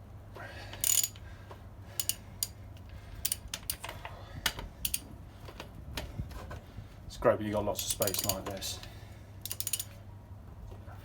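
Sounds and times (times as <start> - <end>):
socket wrench clicking: 0.8 - 1.2, 2.0 - 2.6, 7.8 - 8.4, 9.4 - 9.9.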